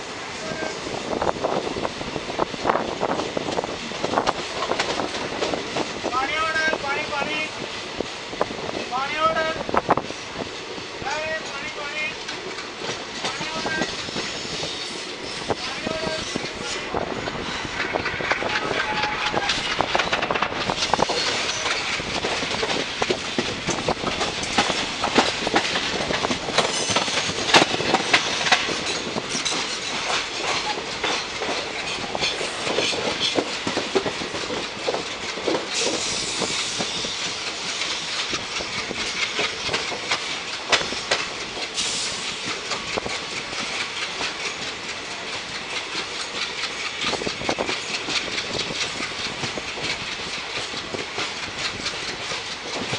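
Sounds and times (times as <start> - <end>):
train coach rushing rumble: 0.0 - 52.9
wheels clattering over rails: 16.3 - 36.2, 37.2 - 52.9.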